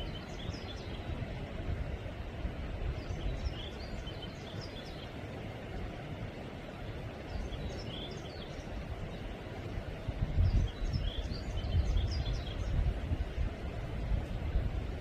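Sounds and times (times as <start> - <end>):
small birds chirping: 0.0 - 1.2, 3.0 - 5.2, 7.2 - 9.4, 10.4 - 12.9
low rumble in gusts: 0.0 - 15.0.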